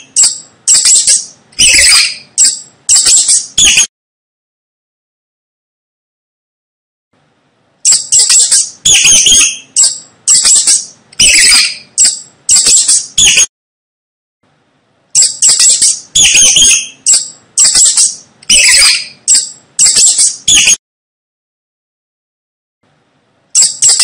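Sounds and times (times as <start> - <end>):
mouse squeaking: 0.0 - 3.9, 7.8 - 13.5, 15.2 - 20.8, 23.5 - 24.0.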